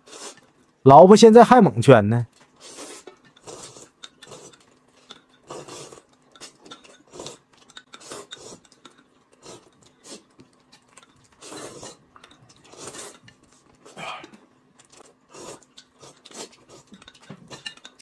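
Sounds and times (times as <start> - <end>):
noodles slurped and chewed: 0.0 - 0.8, 2.3 - 18.0
chopsticks clicking on dishes: 12.2 - 13.6, 15.7 - 18.0.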